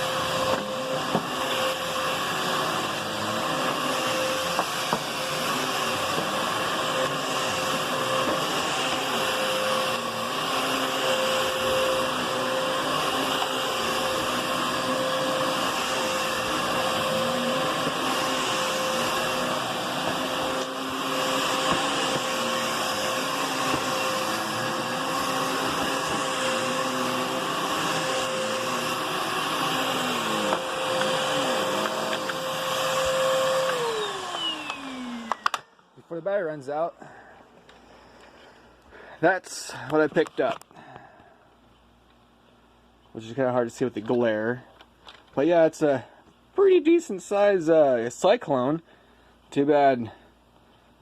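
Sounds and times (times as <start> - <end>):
vacuum cleaner motor whine: 0.0 - 36.0.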